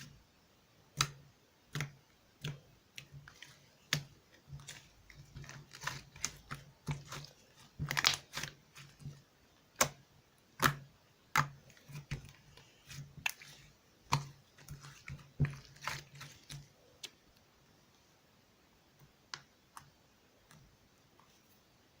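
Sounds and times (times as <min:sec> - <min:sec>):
sharp clicks and wet pops: 0:00.9 - 0:04.7, 0:09.7 - 0:12.4, 0:19.0 - 0:21.3.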